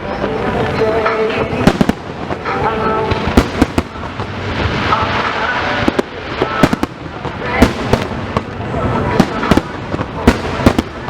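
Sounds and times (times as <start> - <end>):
fireworks bangs: 0.3 - 11.0.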